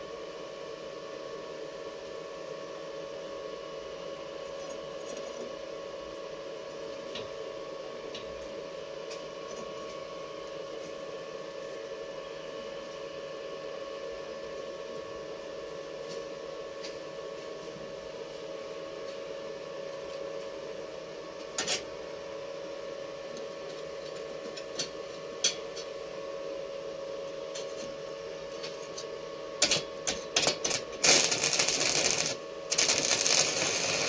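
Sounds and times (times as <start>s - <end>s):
steady even hum: 30.6s - 34.0s.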